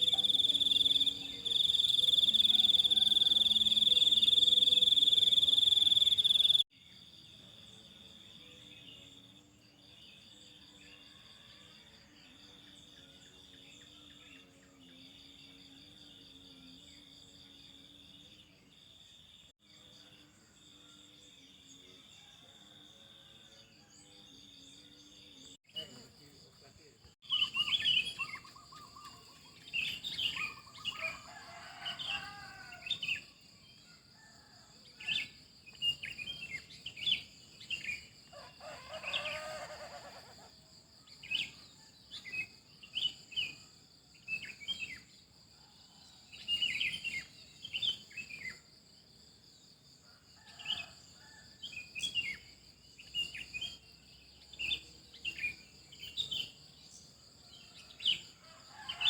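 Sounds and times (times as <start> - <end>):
high insect drone: 0.0 - 6.6
songbirds chirping: 0.0 - 40.1.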